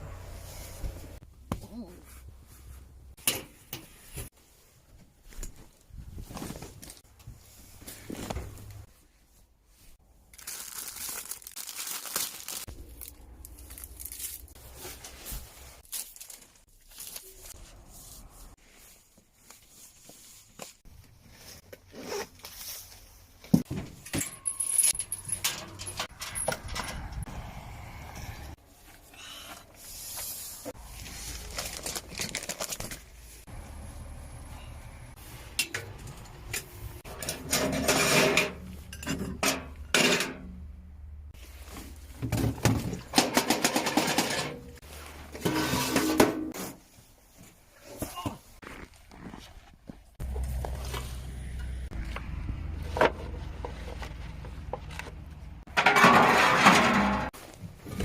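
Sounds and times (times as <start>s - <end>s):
rustling: 3.9s - 23.5s, 28.7s - 34.2s, 41.3s - 42.8s.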